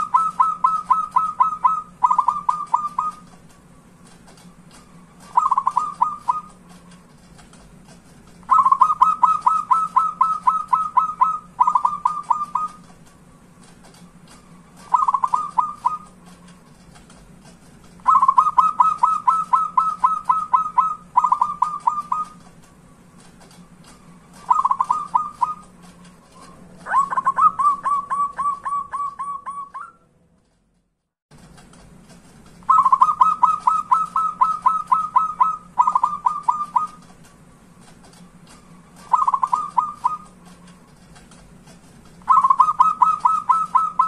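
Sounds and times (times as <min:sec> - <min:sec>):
dove cooing: 0:00.0 - 0:03.3, 0:05.1 - 0:06.8, 0:08.4 - 0:12.9, 0:14.8 - 0:16.3, 0:18.0 - 0:22.4, 0:24.3 - 0:25.7, 0:26.4 - 0:30.0, 0:32.7 - 0:37.1, 0:38.6 - 0:40.6, 0:42.2 - 0:44.0.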